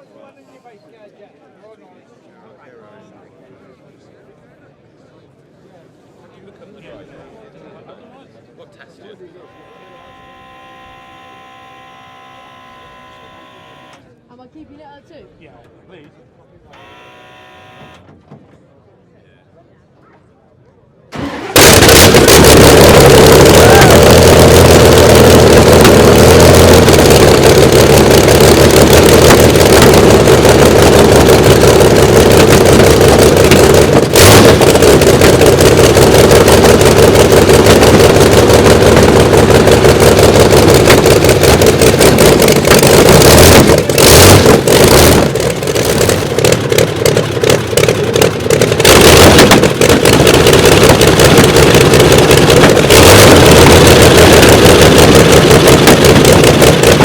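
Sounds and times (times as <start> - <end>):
aero engine running loud: 21.2 - 57.0.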